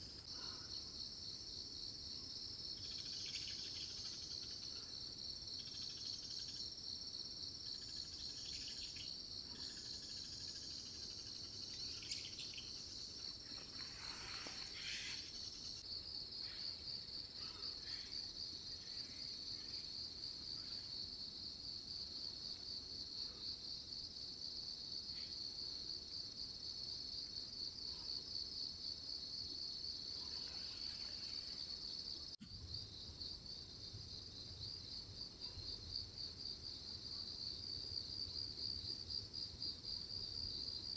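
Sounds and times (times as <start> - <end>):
insects trilling: 2.6 - 6.8, 7.6 - 21.1.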